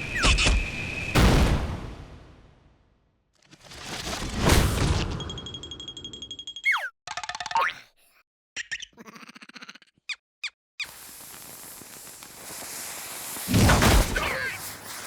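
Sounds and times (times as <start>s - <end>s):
squeaky cartoon chirps: 0.1s - 0.6s, 6.6s - 7.8s, 8.6s - 10.6s.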